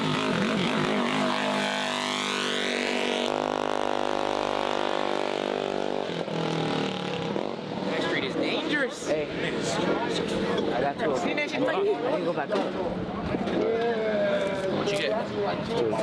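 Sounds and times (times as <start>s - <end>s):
mini bike engine revving: 0.0s - 8.4s.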